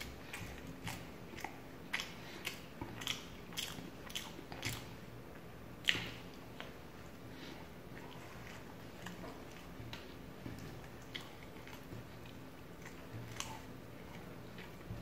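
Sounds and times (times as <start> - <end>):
person chewing and biting: 0.0 - 4.9.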